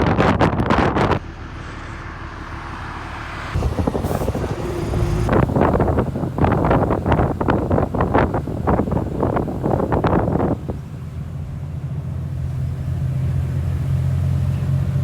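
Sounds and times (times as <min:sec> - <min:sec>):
wind buffeting microphone: 0:00.0 - 0:14.8
road noise: 0:00.0 - 0:15.0
bus engine droning: 0:00.2 - 0:15.0.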